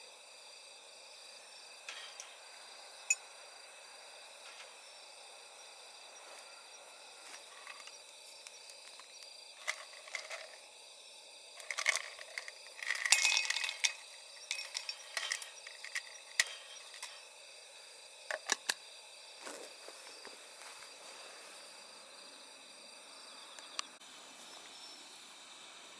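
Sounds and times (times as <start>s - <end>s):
light clinks and clicks: 11.6s - 17.3s.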